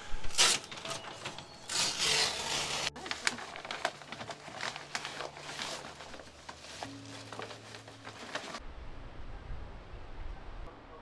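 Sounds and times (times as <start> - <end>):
rustling and handling noise: 0.0 - 8.6.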